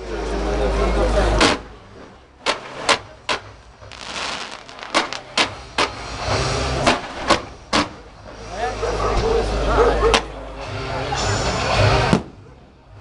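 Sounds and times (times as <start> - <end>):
firework cracks: 2.4 - 6.1
spark fountains hissing: 3.9 - 5.6.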